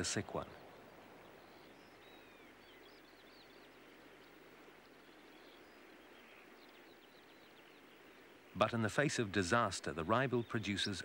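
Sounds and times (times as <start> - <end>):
faint high bird chirps: 0.0 - 8.8
quiet steady hiss: 0.0 - 11.0.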